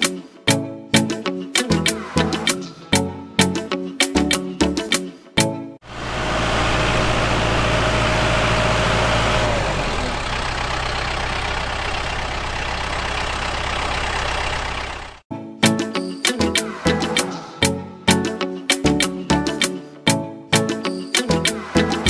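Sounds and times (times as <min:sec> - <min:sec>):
motor humming: 0:05.9 - 0:15.2.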